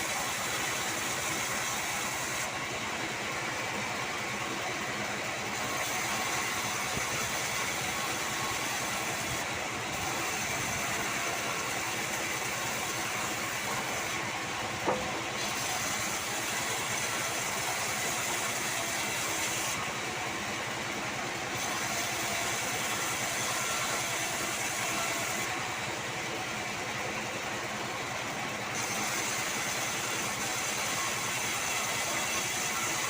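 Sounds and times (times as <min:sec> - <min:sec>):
band sawmill sawing wood: 0:00.0 - 0:33.0.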